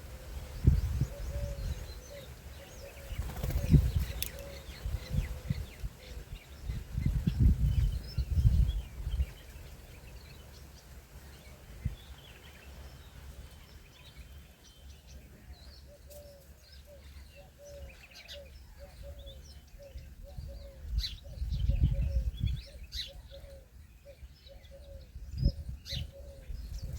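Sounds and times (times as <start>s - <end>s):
low cooing bird notes: 0.0s - 7.1s, 15.4s - 26.9s.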